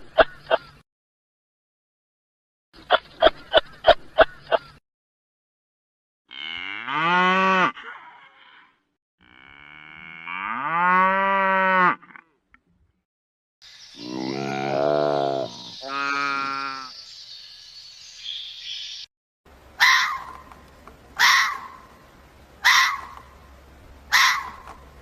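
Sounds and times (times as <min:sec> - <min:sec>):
low animal calls: 0:14.0 - 0:16.9.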